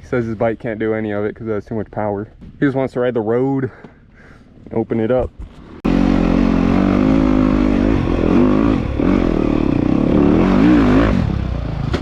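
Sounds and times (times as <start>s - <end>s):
dirt bike engine revving: 5.8s - 12.0s.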